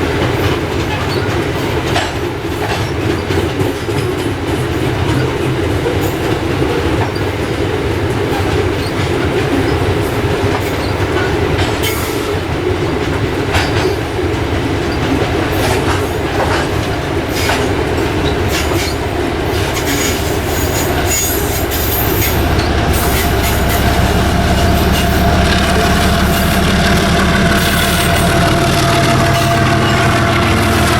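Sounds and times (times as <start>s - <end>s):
diesel locomotive engine drone: 0.0s - 30.9s
train wagons rumbling on rails: 0.0s - 30.9s
wheel squeal: 14.8s - 30.9s.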